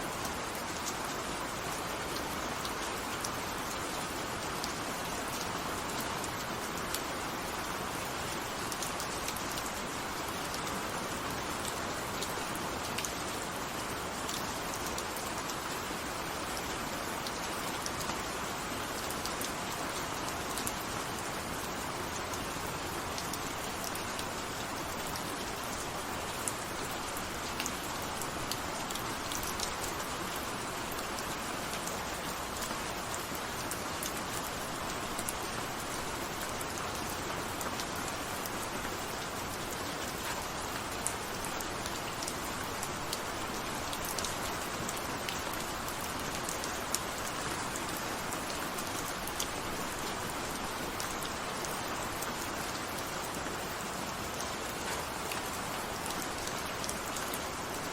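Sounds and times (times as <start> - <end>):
steady rain hissing: 0.0 - 57.9.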